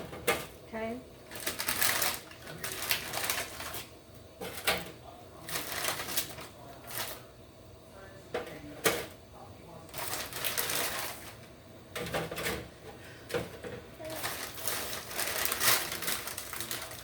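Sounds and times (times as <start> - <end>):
rustling: 1.2 - 3.9, 9.9 - 11.4, 14.0 - 17.0.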